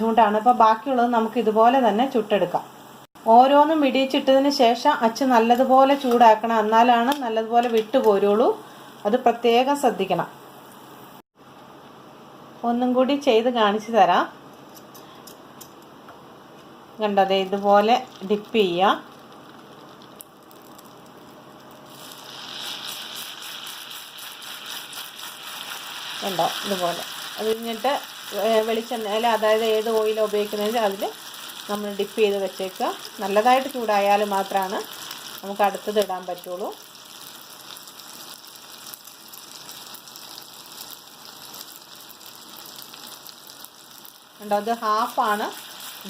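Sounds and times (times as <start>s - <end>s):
batter sizzling in hot oil: 17.4s - 46.0s.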